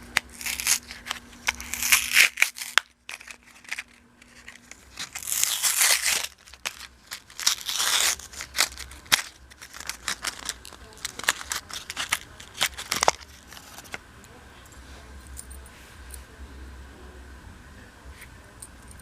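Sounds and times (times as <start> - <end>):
plastic packaging crinkling and tearing: 0.1 - 14.0.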